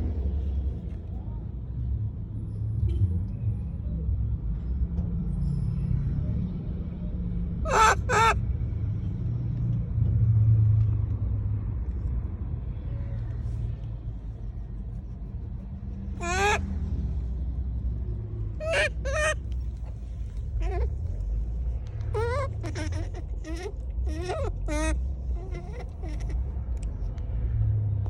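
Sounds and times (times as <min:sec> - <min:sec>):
monkey calls: 0:07.6 - 0:08.4, 0:15.2 - 0:16.8, 0:18.4 - 0:27.0.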